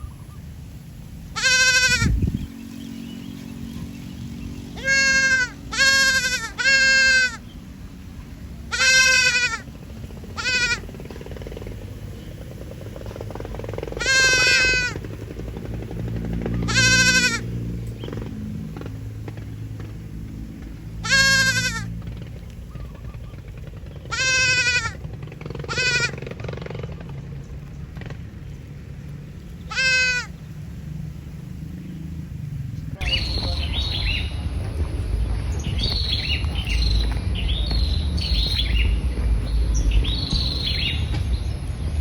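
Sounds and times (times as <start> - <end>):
steady low rumble: 0.0 - 42.0
young goat bleating: 1.4 - 2.2, 4.8 - 7.5, 8.7 - 9.7, 10.4 - 10.8, 14.0 - 15.0, 16.7 - 17.5, 21.0 - 21.9, 24.1 - 25.0, 25.7 - 26.2, 29.7 - 30.4.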